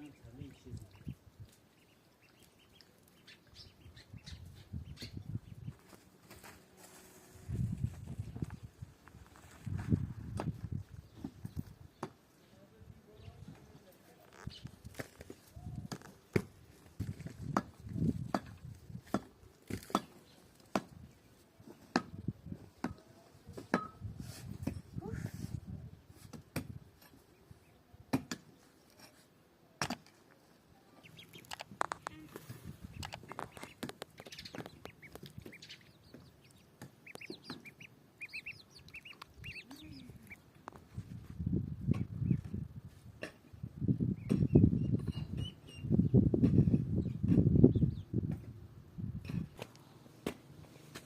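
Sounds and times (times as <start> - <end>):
poultry peeping: 0.0 - 8.8, 9.4 - 19.0, 27.0 - 27.9, 30.4 - 48.5
soft clucks: 31.0 - 40.4.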